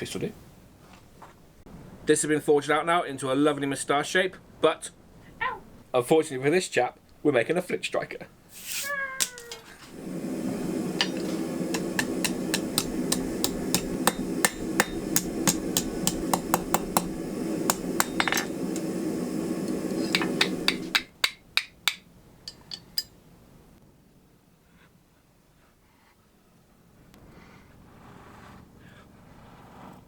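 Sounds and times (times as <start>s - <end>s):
steady hum: 9.8s - 21.2s.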